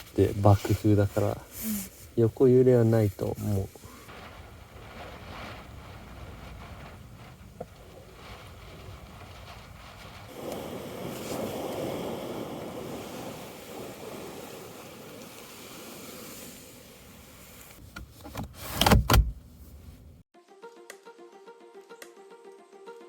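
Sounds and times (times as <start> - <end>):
strong wind gusting: 3.8 - 17.6
background music: 20.4 - 23.0.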